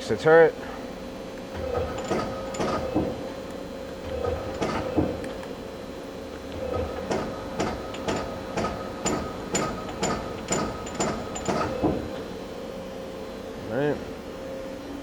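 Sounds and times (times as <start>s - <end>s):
machine humming: 0.9s - 15.0s
lathe turret clunking: 1.5s - 3.4s, 4.0s - 5.4s, 6.4s - 12.3s.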